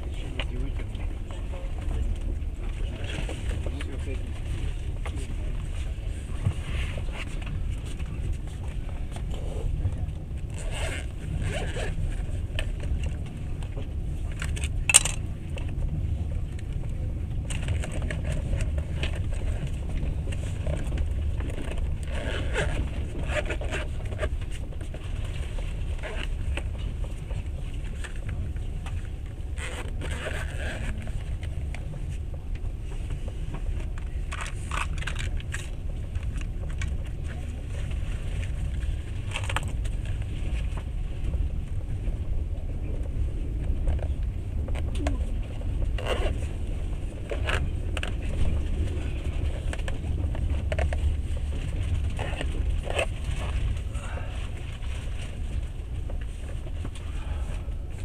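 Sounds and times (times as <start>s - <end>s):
train running gear rumbling: 0.0s - 58.0s
carriage rattling and clicking: 12.7s - 15.8s.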